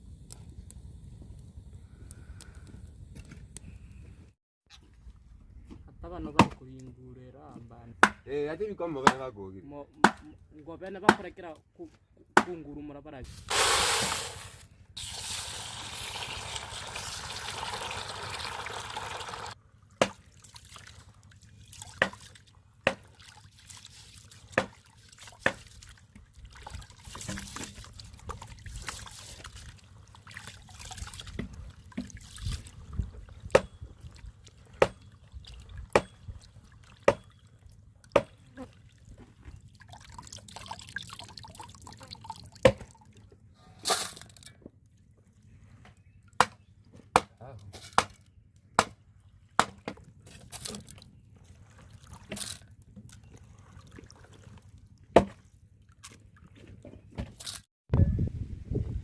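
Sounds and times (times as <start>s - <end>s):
water rushing: 15.0s - 19.6s.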